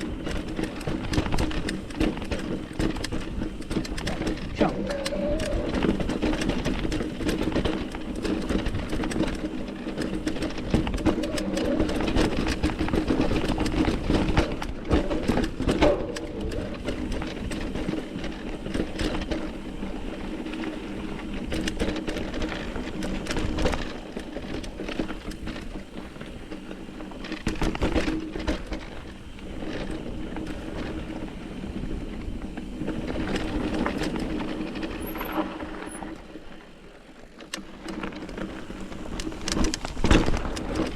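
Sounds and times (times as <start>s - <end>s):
bike clattering over bumps: 0.0s - 40.9s
tyres on dirt trail: 0.0s - 40.9s.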